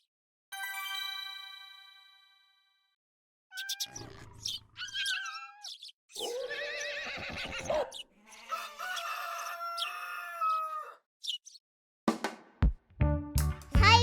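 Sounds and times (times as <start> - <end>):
horse whinnying: 3.8 - 8.8.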